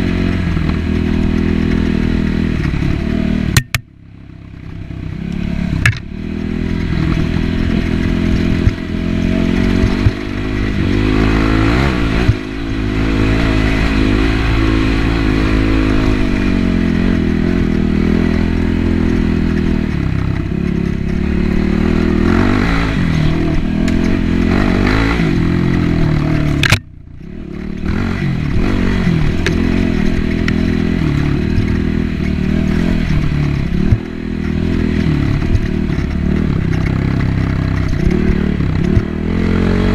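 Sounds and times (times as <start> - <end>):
motorcycle engine revving: 0.0 - 39.9
sharp knocks: 3.5 - 3.9.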